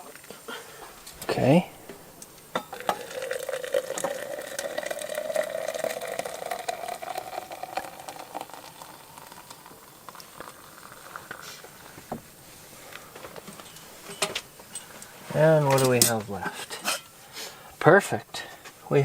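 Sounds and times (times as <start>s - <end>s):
hot water pouring into a mug: 1.3s - 13.9s.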